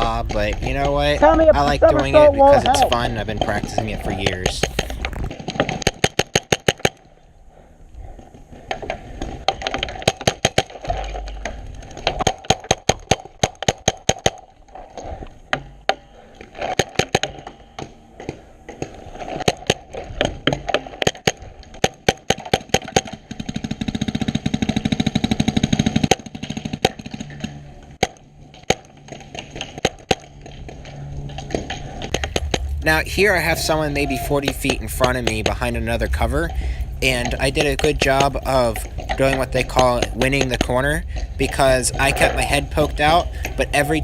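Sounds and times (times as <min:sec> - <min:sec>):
steady rushing noise: 0:00.0 - 0:05.8, 0:29.4 - 0:44.0
paintball markers firing: 0:02.0 - 0:07.1.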